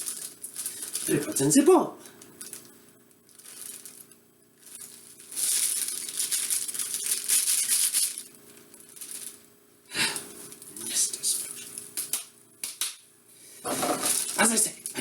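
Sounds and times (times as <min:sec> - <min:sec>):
cake mix pouring into bowl: 0:04.7 - 0:09.4.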